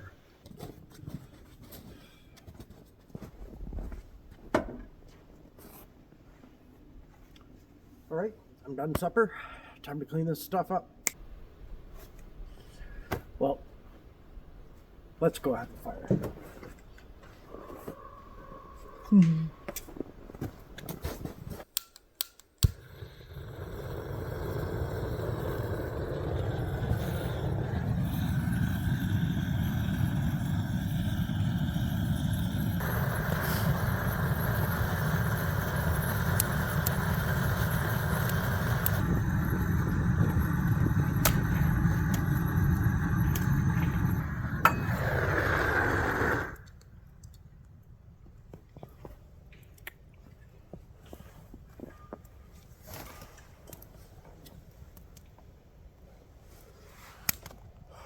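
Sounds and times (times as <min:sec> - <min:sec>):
propane torch burning: 0:22.3 - 0:46.8.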